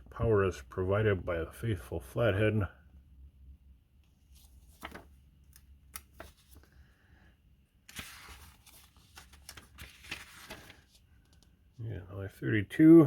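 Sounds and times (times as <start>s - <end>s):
magazine paper rustling: 4.2s - 6.9s, 7.8s - 11.6s.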